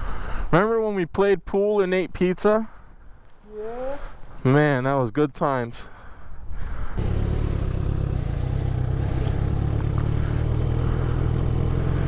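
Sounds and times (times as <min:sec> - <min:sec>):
motorcycle engine idling: 0:07.0 - 0:12.0.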